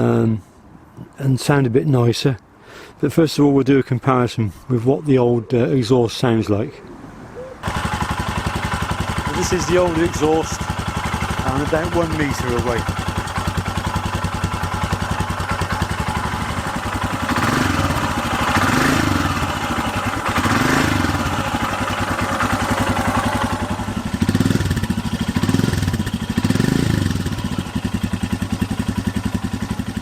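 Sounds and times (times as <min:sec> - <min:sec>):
motorcycle engine idling: 0:07.6 - 0:30.0.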